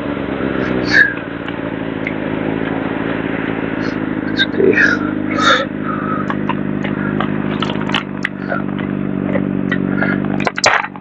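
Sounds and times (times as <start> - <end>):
motorcycle engine idling: 0.0 - 11.0
clicks and scraping: 6.2 - 11.0.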